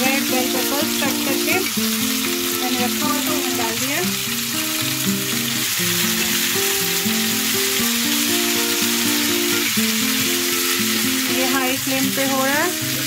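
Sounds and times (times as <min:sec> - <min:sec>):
background music with held notes: 0:00.0 - 0:13.0
vegetables sizzling in oil: 0:00.0 - 0:13.0.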